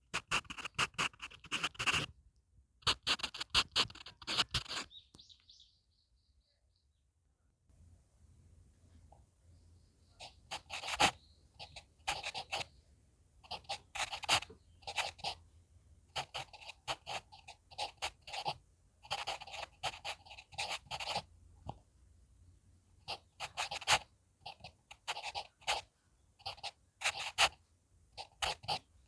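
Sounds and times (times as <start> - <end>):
pencil scratching on paper: 0.0 - 2.1, 2.8 - 4.9, 10.2 - 12.7, 13.4 - 15.4, 16.1 - 21.3, 23.0 - 27.6, 28.2 - 29.0.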